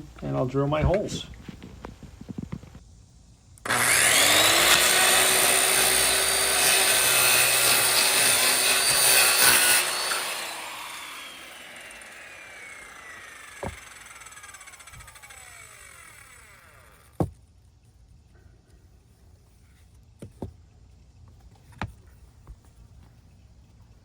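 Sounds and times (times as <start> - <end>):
power tool motor whining: 3.6 - 17.4.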